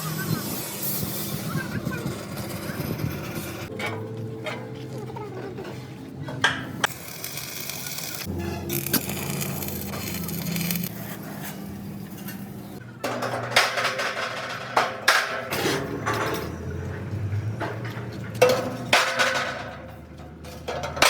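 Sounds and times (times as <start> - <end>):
steel parts clattering: 5.6 - 21.0.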